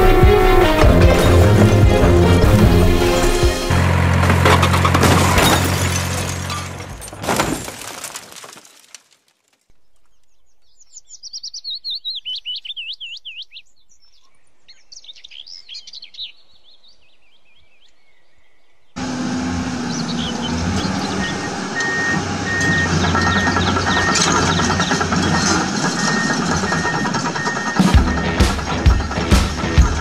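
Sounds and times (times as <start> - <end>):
background music with deep bass: 0.0 - 4.3, 27.9 - 30.0
bird chirping rapidly: 9.8 - 18.6, 19.9 - 28.8.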